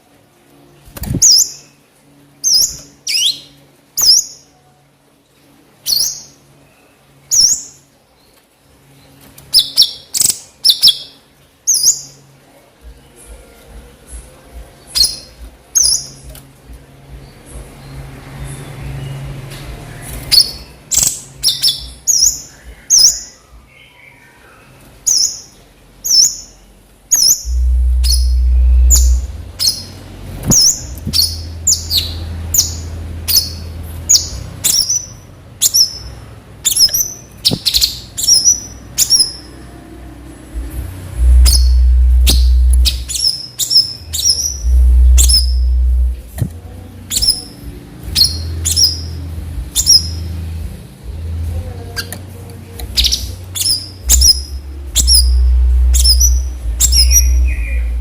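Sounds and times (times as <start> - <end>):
bird giving sharp high chirps: 27.2 - 36.1, 41.2 - 46.2, 53.0 - 58.0
low rumble: 27.4 - 33.9, 40.0 - 43.2, 44.0 - 51.8, 54.1 - 58.0.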